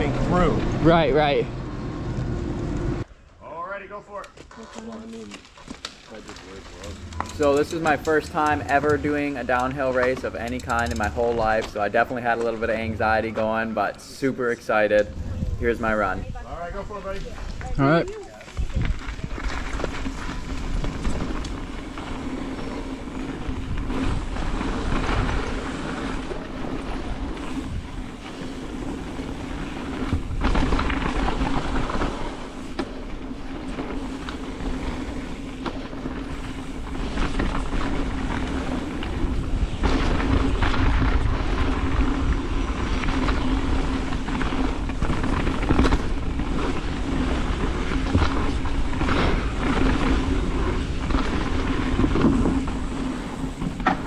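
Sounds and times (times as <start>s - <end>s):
bike rattling: 0.0s - 3.6s, 4.5s - 54.0s
bike tyres rolling on dirt: 0.0s - 54.0s
wind rushing over microphone: 14.8s - 17.8s, 18.4s - 54.0s.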